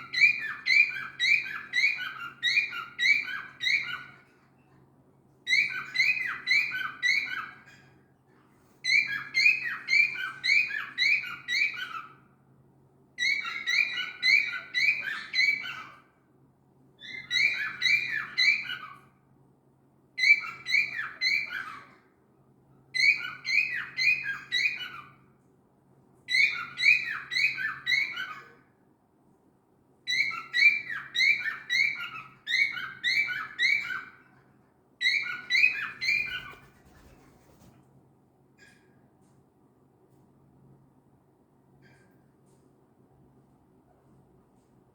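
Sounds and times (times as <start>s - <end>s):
cockatiel shrill chirping calls: 0.0s - 4.2s, 5.5s - 7.8s, 8.8s - 12.2s, 13.2s - 16.1s, 17.0s - 19.0s, 20.2s - 21.9s, 23.0s - 25.2s, 26.3s - 28.6s, 30.1s - 34.3s, 35.0s - 37.6s
faint low hum: 31.8s - 44.9s.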